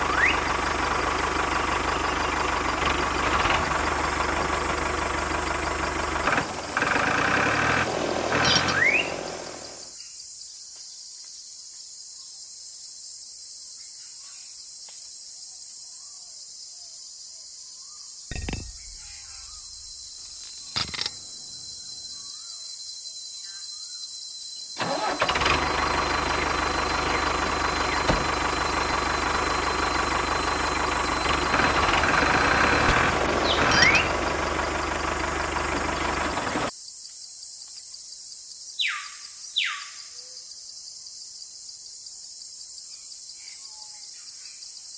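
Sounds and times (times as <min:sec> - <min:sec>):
motor running: 0:00.0 - 0:09.9, 0:24.8 - 0:36.7.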